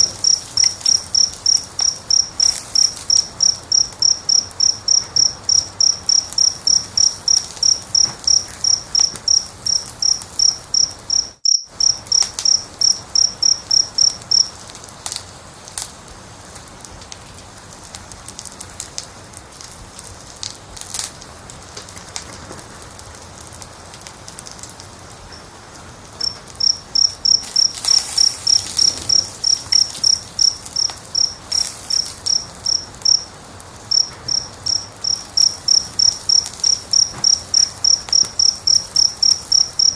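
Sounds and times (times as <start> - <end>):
cricket chirping: 0.0 - 14.7, 26.2 - 39.9
wood fire crackling and popping: 0.0 - 39.9.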